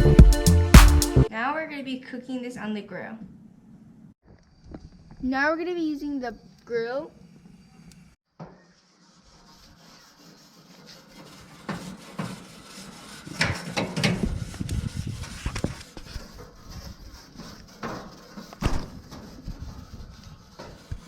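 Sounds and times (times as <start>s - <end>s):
scraping and rubbing: 8.6s - 21.0s.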